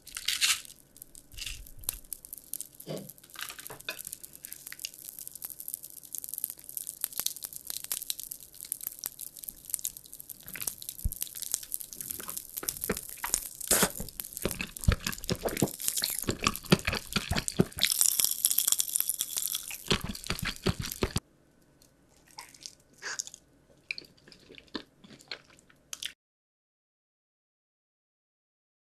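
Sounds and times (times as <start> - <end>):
crunching candy: 0.0 - 21.2
soft chewing clicks: 4.0 - 17.9, 19.6 - 21.2, 21.8 - 26.2.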